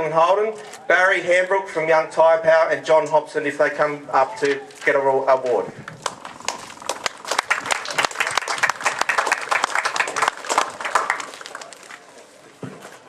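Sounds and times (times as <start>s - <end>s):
crowd applauding: 6.0s - 12.0s.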